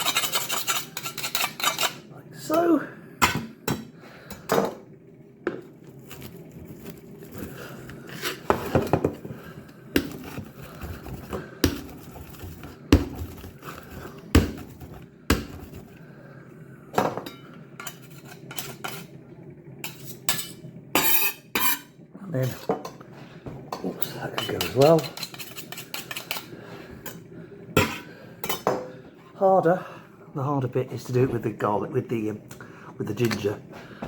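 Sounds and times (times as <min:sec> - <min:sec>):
utensils clinking against dishes: 0:00.0 - 0:02.0, 0:19.8 - 0:23.0, 0:23.7 - 0:28.9
steady low hum: 0:00.0 - 0:34.0.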